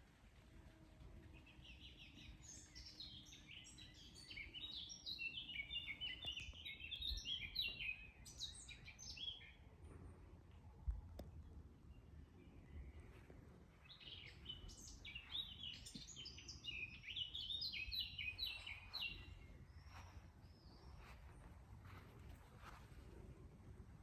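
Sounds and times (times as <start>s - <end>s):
songbird singing: 0.6s - 23.3s
low background rumble: 9.5s - 24.0s.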